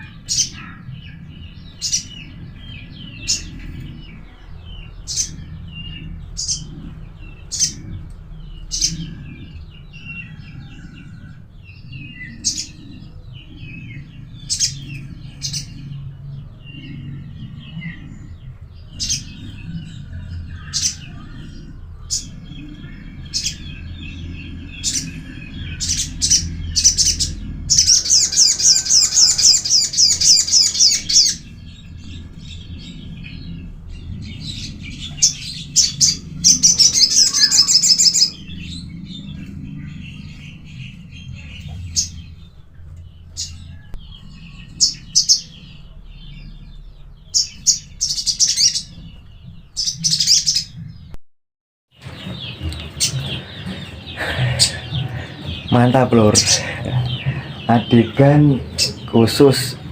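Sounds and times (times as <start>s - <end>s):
bird chirping: 0.0s - 51.2s, 52.0s - 59.9s
low steady hum: 0.0s - 51.2s
bird rapid trills: 34.3s - 38.6s.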